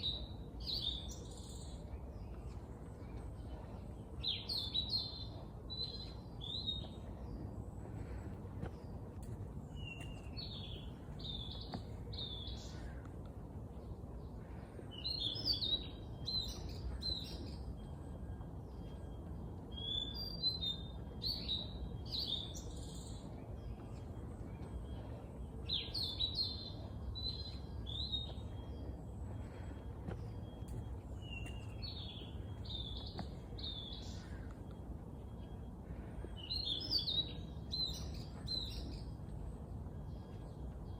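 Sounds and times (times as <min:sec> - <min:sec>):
low background noise: 0:00.0 - 0:40.9
songbirds chirping and singing: 0:00.0 - 0:40.9.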